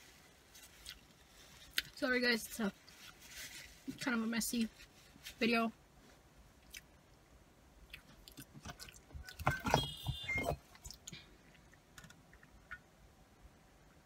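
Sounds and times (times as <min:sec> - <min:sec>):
chewing and mouth clicks: 0:06.6 - 0:06.9, 0:07.9 - 0:09.4
short high squeaks: 0:09.3 - 0:10.6.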